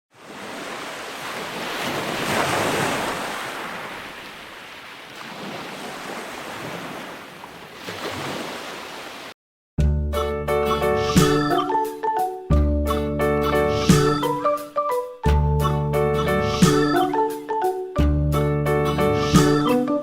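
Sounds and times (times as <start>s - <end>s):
sea surf washing: 0.1s - 9.4s
wind: 0.1s - 9.4s
keyboard music: 9.9s - 20.0s.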